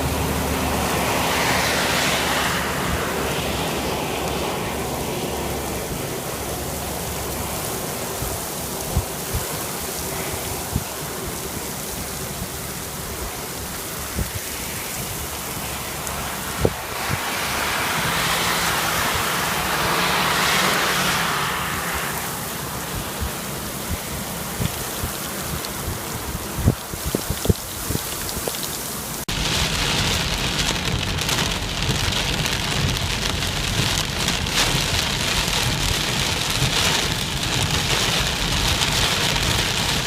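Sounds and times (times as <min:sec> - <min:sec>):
heavy rain hissing: 0:00.0 - 0:40.0
raindrops tapping nearby: 0:23.9 - 0:40.0.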